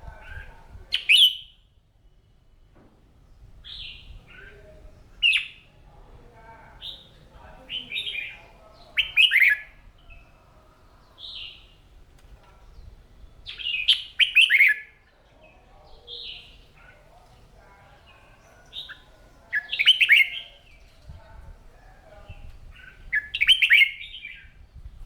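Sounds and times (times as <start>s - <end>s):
bird song bursts: 0.3s - 1.7s, 3.3s - 5.7s, 12.7s - 15.0s, 18.1s - 21.0s, 22.3s - 25.0s
single whistled bird notes: 1.0s - 1.6s.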